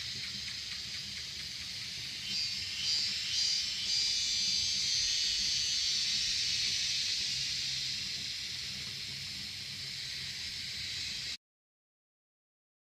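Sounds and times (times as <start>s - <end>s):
cicadas and insects chorus: 0.0s - 11.4s.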